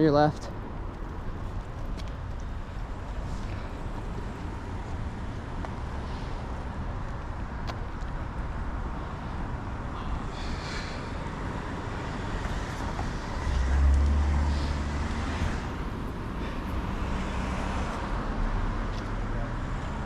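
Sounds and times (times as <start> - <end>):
traffic and road noise: 0.0 - 20.0.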